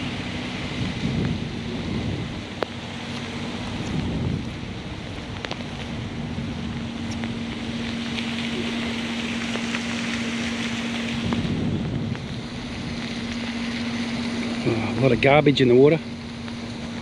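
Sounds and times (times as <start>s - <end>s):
car engine humming: 0.0s - 17.0s
rushing hiss: 7.0s - 15.0s.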